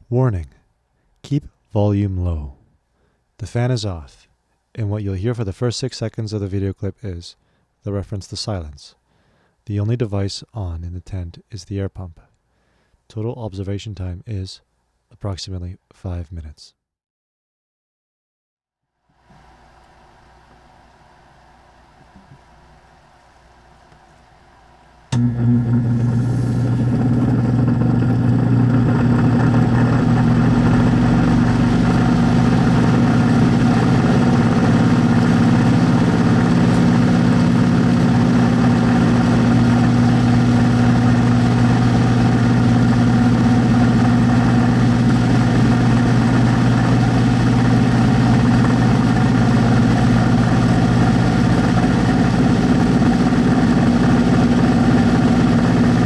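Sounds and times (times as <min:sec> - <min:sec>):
duct fan motor hum: 0:19.2 - 0:56.0.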